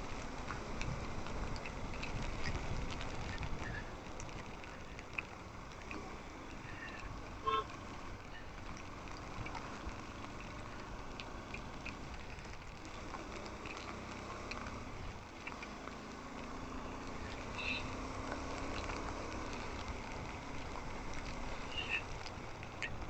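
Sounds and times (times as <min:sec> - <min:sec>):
road and wind noise: 0:00.0 - 0:23.0
vehicle horn toot: 0:07.4 - 0:07.8.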